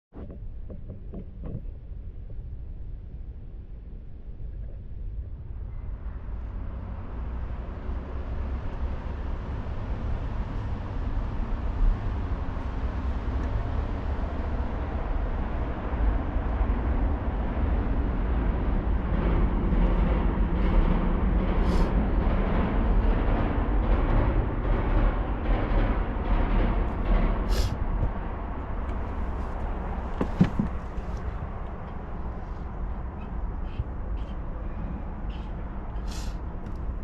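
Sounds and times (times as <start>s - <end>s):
wind buffeting microphone: 0.2s - 37.0s.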